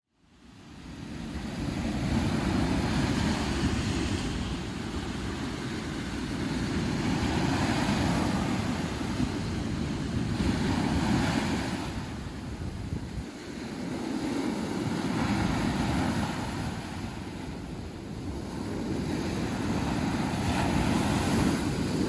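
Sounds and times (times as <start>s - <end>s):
sea surf breaking on beach: 0.3s - 22.0s
wind buffeting microphone: 0.7s - 22.0s.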